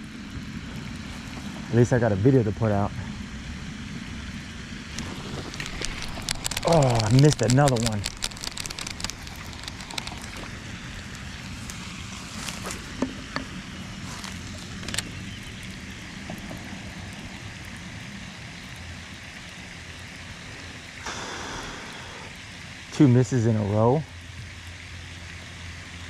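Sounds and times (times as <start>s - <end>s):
outdoor background noise: 0.0s - 26.0s
light clicks and ticks: 5.0s - 11.8s.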